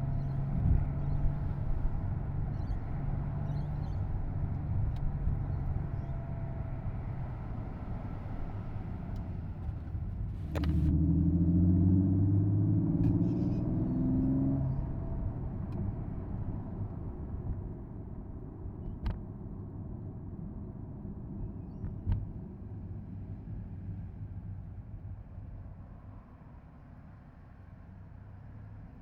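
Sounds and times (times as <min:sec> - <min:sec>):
road noise: 0:00.0 - 0:19.1
car engine while driving: 0:00.0 - 0:20.6.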